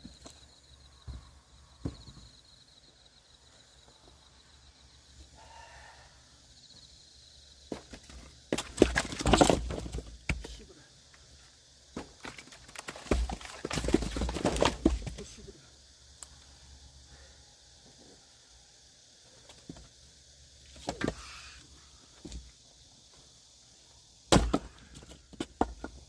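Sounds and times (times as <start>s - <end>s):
wood clattering and knocking: 7.7s - 10.6s, 11.9s - 15.3s, 24.3s - 26.0s.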